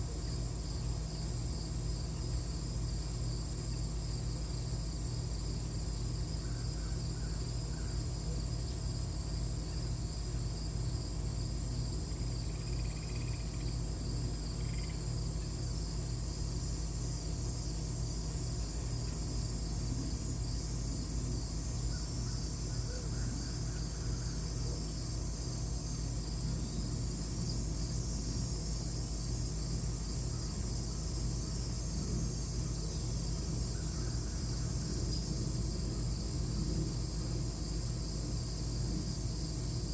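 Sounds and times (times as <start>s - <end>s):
high-pitched insect drone: 12.3s - 39.9s.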